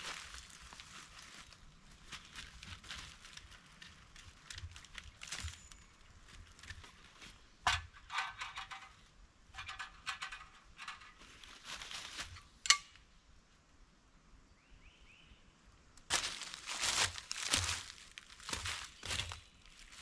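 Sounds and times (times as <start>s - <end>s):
dry crunching and crinkling: 0.0s - 7.4s, 10.3s - 12.5s, 16.1s - 20.0s.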